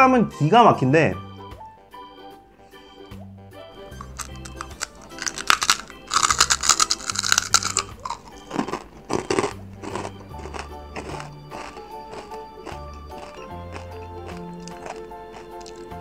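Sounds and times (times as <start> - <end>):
background music with bass: 0.0 - 16.0
crisp crunching while chewing: 3.8 - 16.0.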